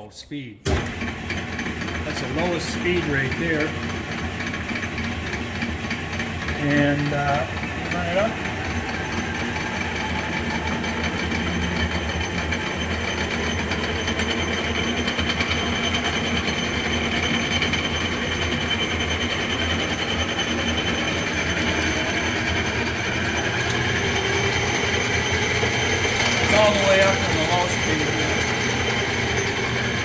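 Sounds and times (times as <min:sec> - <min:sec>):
lathe gear train rattling: 0:00.8 - 0:30.0.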